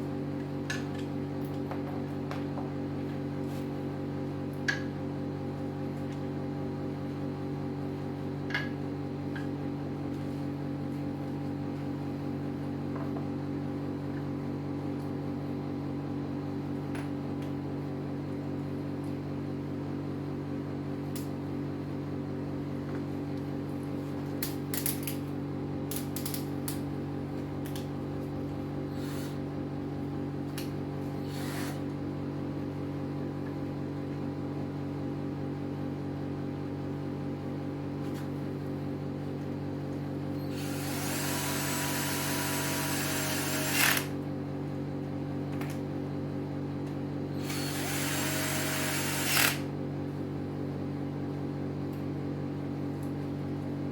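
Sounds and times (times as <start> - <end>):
router motor hum: 40.5 - 44.1, 47.4 - 49.7.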